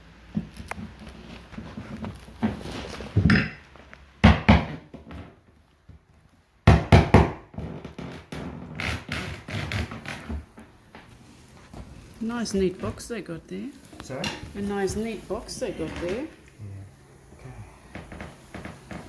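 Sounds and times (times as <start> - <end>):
hand tools knocking on wooden panels: 4.2 - 7.6
scraping: 8.0 - 19.0.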